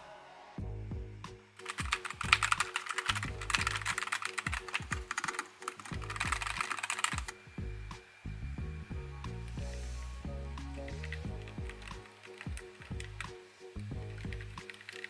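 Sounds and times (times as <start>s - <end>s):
background music with steady beat: 0.0s - 15.0s
fast typing on mechanical keyboard: 1.6s - 7.3s, 10.9s - 13.3s, 14.2s - 15.0s.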